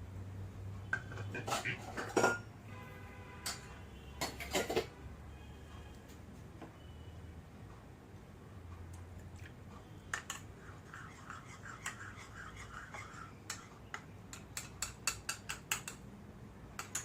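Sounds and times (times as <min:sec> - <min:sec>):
kitchen utensils clicking: 0:01.0 - 0:02.4, 0:04.2 - 0:04.9, 0:13.5 - 0:16.0, 0:16.8 - 0:17.0.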